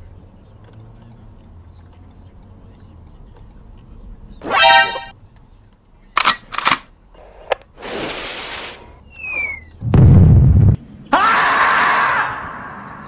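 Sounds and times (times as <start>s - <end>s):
short pitched blare: 4.4s - 5.1s
falling whistle: 9.2s - 9.7s.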